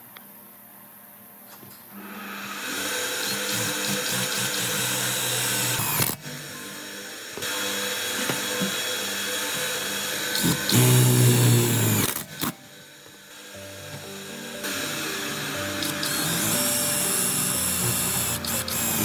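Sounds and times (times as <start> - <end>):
small electric power tool running: 2.0 - 19.0
background music: 3.6 - 19.0.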